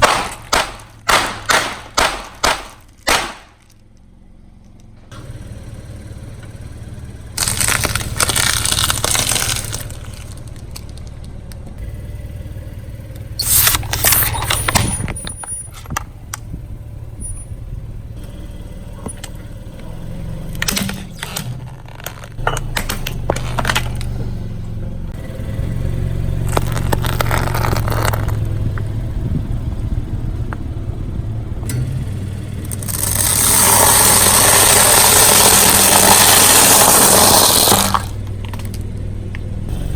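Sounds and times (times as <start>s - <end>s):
objects crushing under tyre: 0.0s - 4.0s, 7.3s - 11.4s, 13.4s - 16.1s, 20.4s - 25.0s, 26.2s - 28.9s, 32.6s - 39.0s
car engine running slowly: 0.0s - 39.9s.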